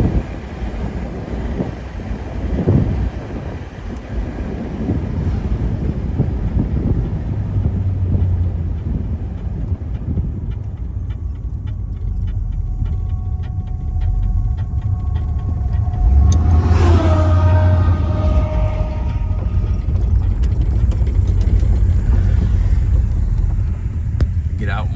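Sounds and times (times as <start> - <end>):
car engine running: 0.0 - 24.9
wind noise: 0.0 - 24.9
regular clicking: 7.6 - 24.9.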